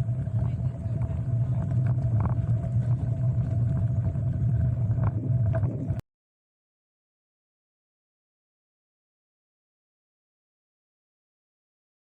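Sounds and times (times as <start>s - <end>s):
bicycle tyre and road noise: 0.0s - 6.0s
wind on microphone: 0.0s - 6.0s.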